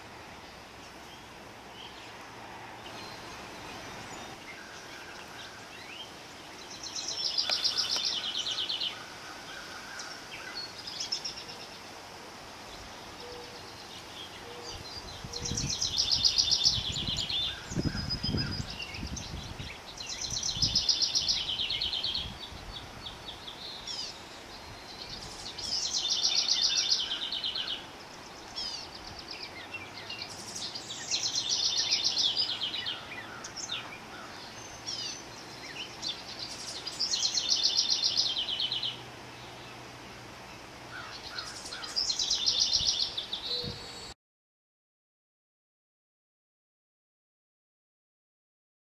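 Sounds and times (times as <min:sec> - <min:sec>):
songbird trilled song: 0:02.8 - 0:09.0, 0:12.7 - 0:39.8, 0:40.5 - 0:44.2
faint bird chirps: 0:41.0 - 0:44.2.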